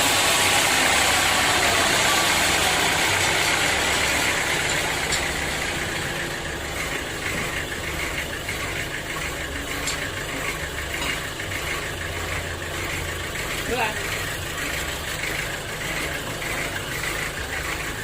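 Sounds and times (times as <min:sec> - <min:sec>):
sawmill machinery humming: 0:00.0 - 0:18.0.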